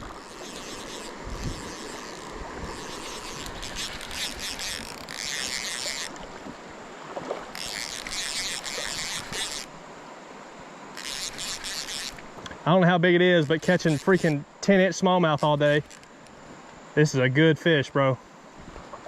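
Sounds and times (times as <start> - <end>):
fishing reel rasping: 0.0 - 6.4, 7.5 - 9.8, 10.9 - 12.4, 13.2 - 14.5, 15.3 - 16.4
river water rushing: 0.0 - 12.4.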